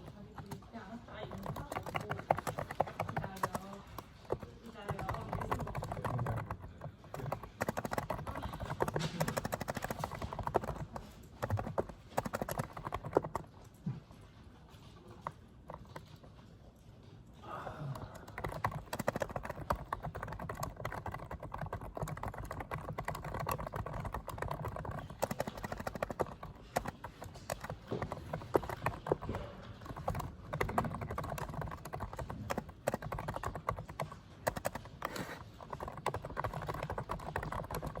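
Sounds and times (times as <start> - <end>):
rapid keyboard typing: 0.0 - 38.0.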